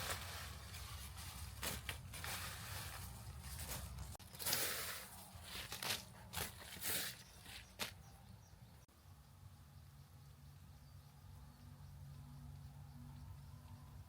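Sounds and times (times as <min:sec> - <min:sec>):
rustling and crunching handling: 0:00.0 - 0:08.1.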